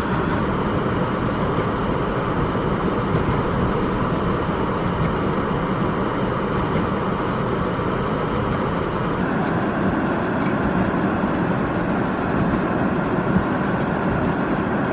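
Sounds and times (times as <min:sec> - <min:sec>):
traffic on snowy roads: 0:00.0 - 0:09.8
blizzard wind rushing: 0:00.0 - 0:14.7.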